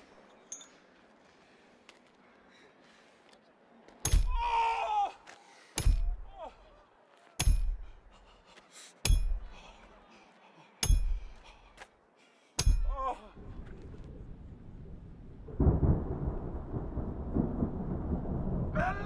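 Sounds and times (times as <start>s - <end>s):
hammer striking metal nail: 7.4s - 7.8s, 9.0s - 9.4s, 10.8s - 11.3s, 12.6s - 12.9s.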